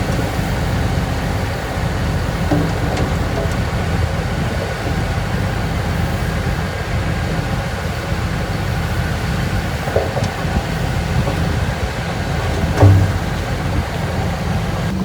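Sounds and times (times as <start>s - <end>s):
diesel engine rumbling: 0.0s - 15.0s
metallic knock: 2.4s - 4.2s, 11.1s - 14.0s.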